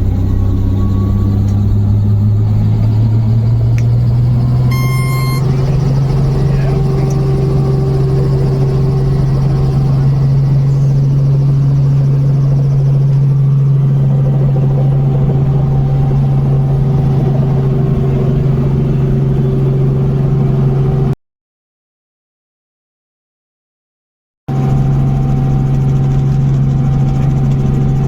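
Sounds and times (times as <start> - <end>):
helicopter engine and rotors drone: 0.0 - 21.2, 24.5 - 28.0.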